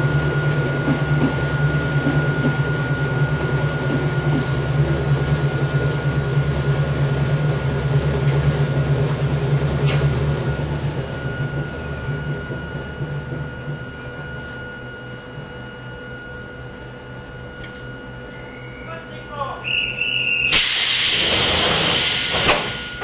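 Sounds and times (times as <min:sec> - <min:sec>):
electric train running rumble: 0:00.0 - 0:23.0.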